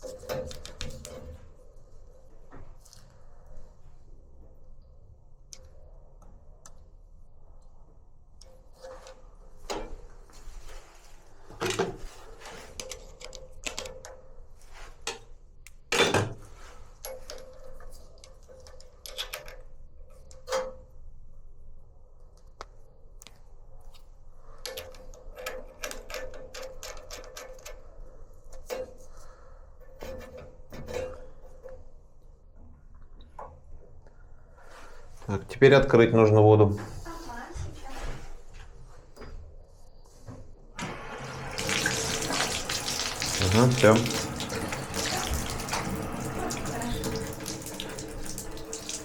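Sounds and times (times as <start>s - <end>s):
tools clicking and knocking: 24.7s - 27.8s.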